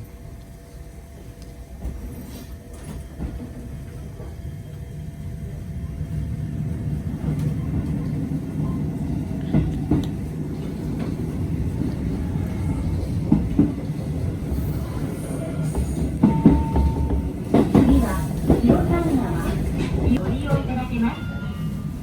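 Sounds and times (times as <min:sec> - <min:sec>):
electric train rumble: 0:00.0 - 0:22.0.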